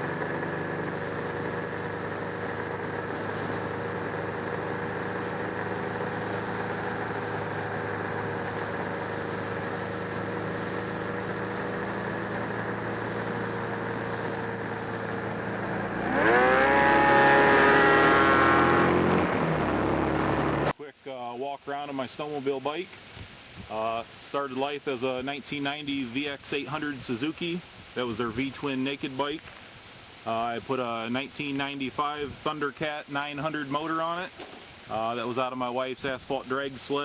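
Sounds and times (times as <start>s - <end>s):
motorcycle engine running and revving: 0.0s - 20.7s.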